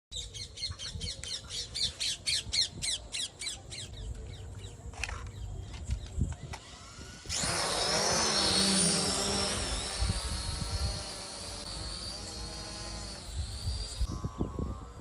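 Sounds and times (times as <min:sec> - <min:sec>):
model aircraft motor whine: 0:05.9 - 0:15.0.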